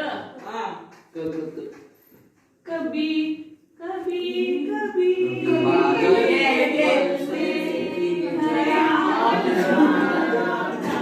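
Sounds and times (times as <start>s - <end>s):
group singing without accompaniment: 3.8s - 11.0s.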